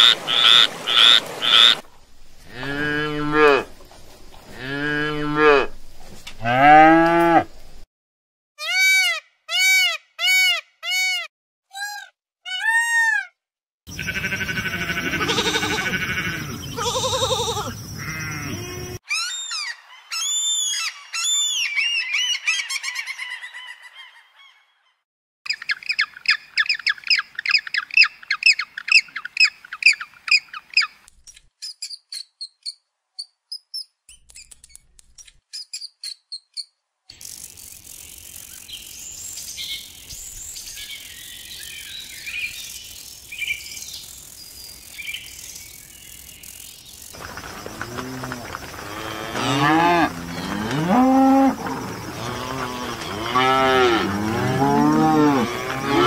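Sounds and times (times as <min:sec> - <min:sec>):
sheep bleating: 0:14.0 - 0:19.0.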